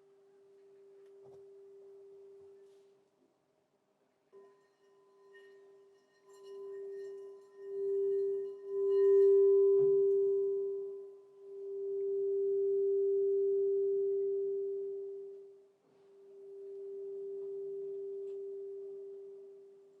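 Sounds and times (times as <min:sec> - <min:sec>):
crystal singing bowl ringing: 0:04.4 - 0:15.6, 0:16.2 - 0:20.0.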